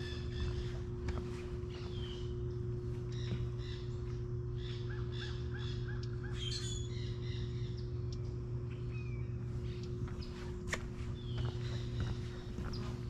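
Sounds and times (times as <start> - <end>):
birds calling: 0.0 - 13.0
steady low hum: 0.0 - 13.0.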